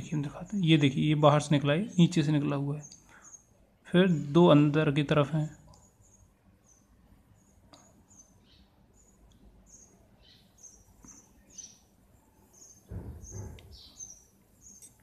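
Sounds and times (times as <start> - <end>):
small bird chirping: 1.8 - 3.6, 5.4 - 15.0.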